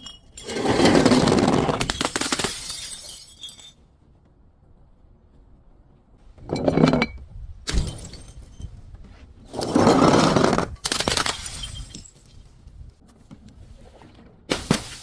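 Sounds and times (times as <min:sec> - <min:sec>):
glass bottles breaking and crushed: 0:00.0 - 0:03.8, 0:07.7 - 0:08.7, 0:10.8 - 0:12.4.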